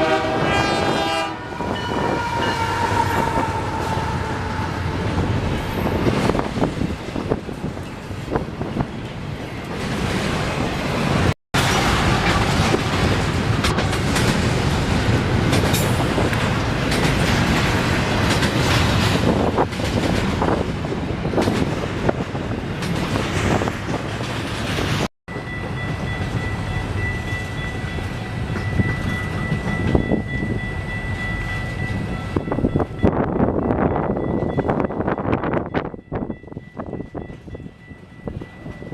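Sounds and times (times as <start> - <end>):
train wheels clattering over rail joints: 11.6 - 20.7, 21.3 - 25.1.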